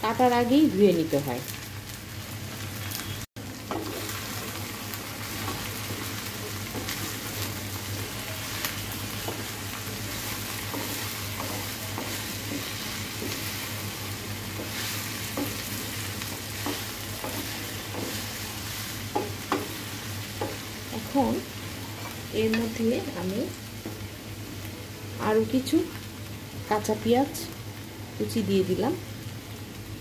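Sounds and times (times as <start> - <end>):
okra sizzling in hot oil: 0.0 - 30.0.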